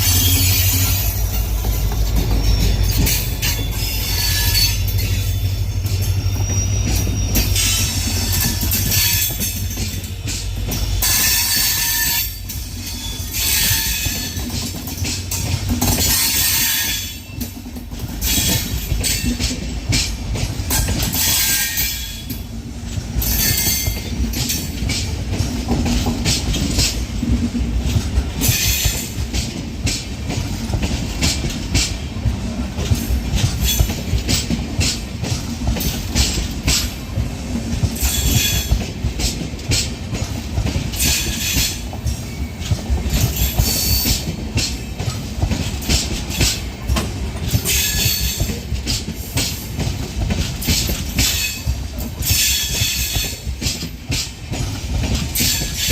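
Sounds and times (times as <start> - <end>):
wheels squealing: 0.0 - 10.4
train wheels rumbling: 0.0 - 55.9
wheels clattering over rail joints: 0.0 - 55.9.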